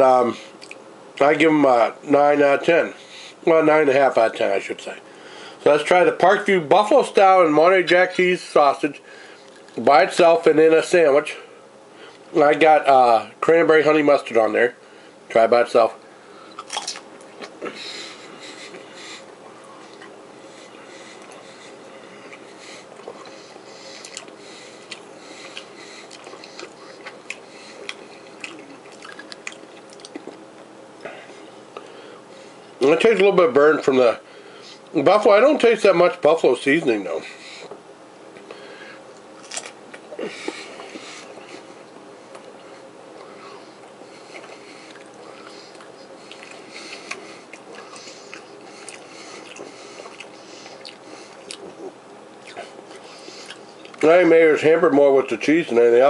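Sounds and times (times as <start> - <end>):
steady background hum: 0.0 - 56.0
person chewing: 0.6 - 0.8, 16.5 - 32.0, 38.4 - 54.0.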